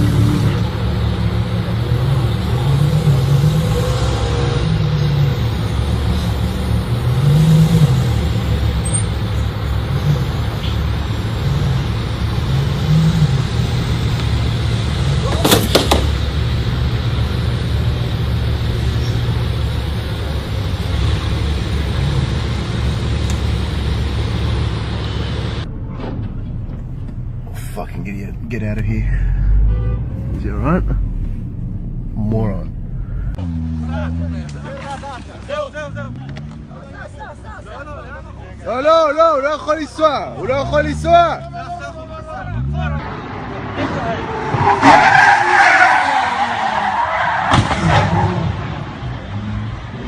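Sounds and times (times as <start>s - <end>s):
car engine revving: 0.0s - 36.9s
road noise: 0.0s - 50.0s
sharp knock: 15.4s - 16.1s.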